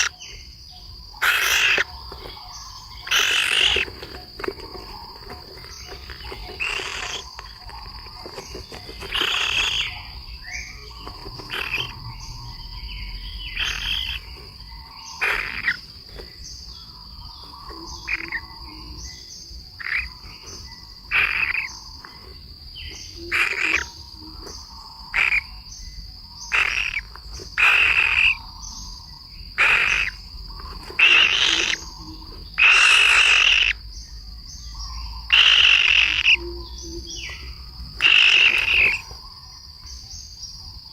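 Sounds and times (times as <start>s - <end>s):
buzzy animal calls: 0.0s - 0.2s, 1.2s - 16.3s, 19.8s - 25.6s, 26.4s - 28.6s, 29.6s - 33.8s, 35.3s - 39.4s
high insect whine: 0.0s - 40.9s.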